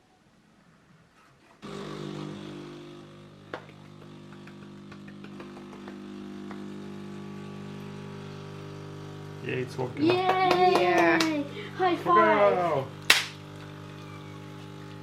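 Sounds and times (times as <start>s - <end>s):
coffee machine hum: 1.6s - 15.0s
coffee machine clicks: 2.0s - 7.2s.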